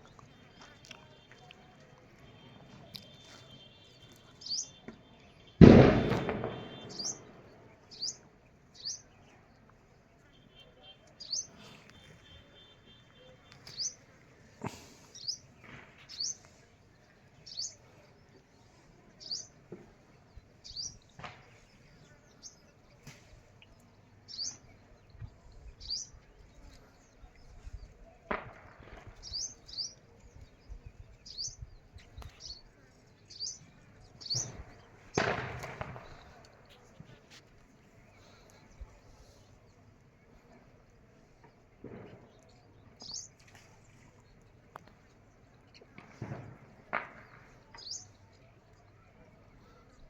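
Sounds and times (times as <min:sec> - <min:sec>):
bird chirping: 0:02.3 - 0:05.6, 0:06.2 - 0:09.3, 0:23.6 - 0:27.9, 0:29.2 - 0:37.2
rustling burst: 0:05.6 - 0:07.6, 0:34.2 - 0:37.3.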